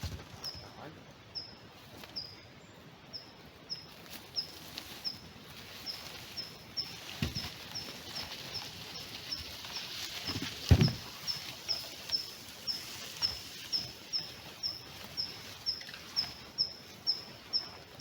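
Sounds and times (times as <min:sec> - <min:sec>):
small bird chirping: 0:00.1 - 0:18.0
soft thud: 0:10.3 - 0:11.1.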